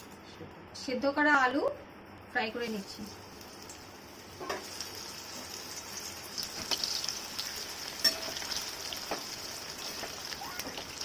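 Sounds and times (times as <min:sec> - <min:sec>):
potatoes sizzling in hot oil: 0:02.6 - 0:11.0
metal spoon tapping pan: 0:07.9 - 0:09.3.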